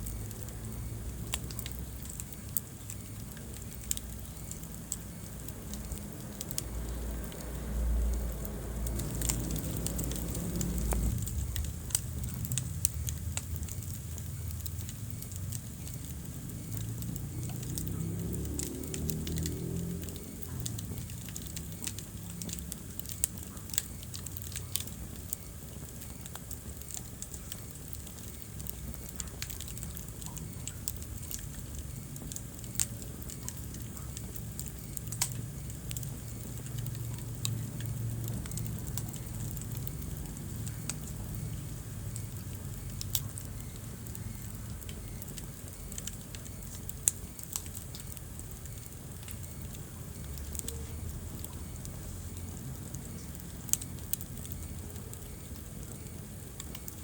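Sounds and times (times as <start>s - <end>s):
wood fire crackling: 0.0s - 57.0s
low rumble: 5.4s - 14.8s.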